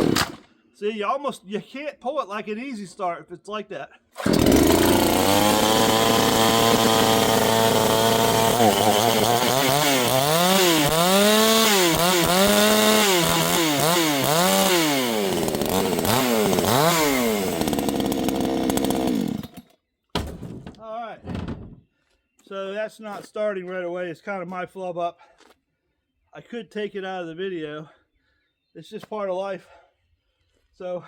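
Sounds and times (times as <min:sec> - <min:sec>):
chainsaw engine revving: 0:00.0 - 0:00.4, 0:04.2 - 0:19.6.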